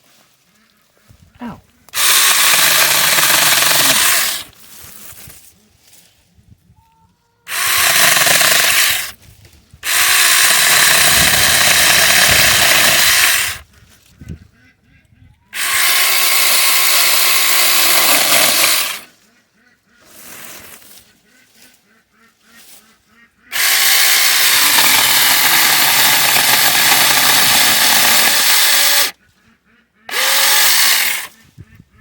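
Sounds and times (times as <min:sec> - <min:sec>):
mini chainsaw cutting branches: 0:01.9 - 0:05.2, 0:07.5 - 0:09.2, 0:09.8 - 0:13.6, 0:15.6 - 0:19.1, 0:23.5 - 0:29.2, 0:30.1 - 0:31.4.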